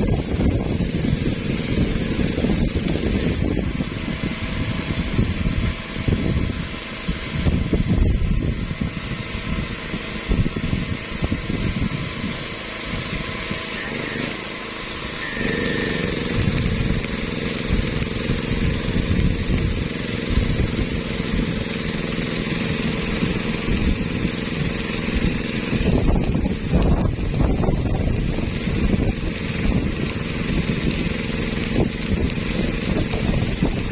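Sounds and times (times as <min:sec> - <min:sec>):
wind buffeting microphone: 0:00.0 - 0:13.7, 0:14.8 - 0:33.9
engine running: 0:00.0 - 0:33.9.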